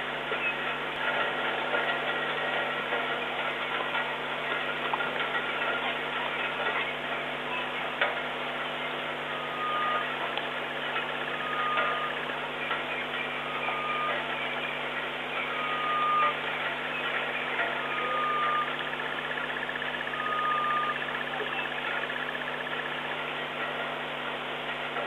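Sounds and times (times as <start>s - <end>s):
vehicle engine idling: 0.0s - 25.0s
faint buzzing trill: 8.6s - 24.1s.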